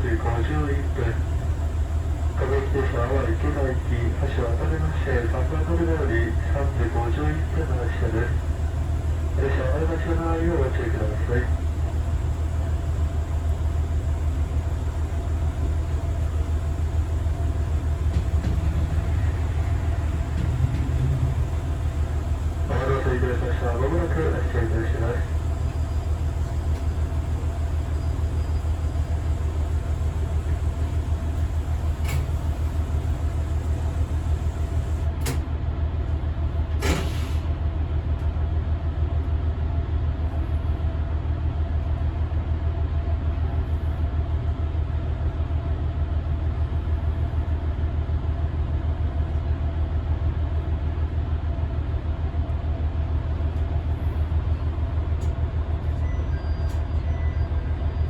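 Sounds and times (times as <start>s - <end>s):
diesel railcar rumbling: 0.0s - 58.0s
short hiss of air: 36.8s - 37.5s.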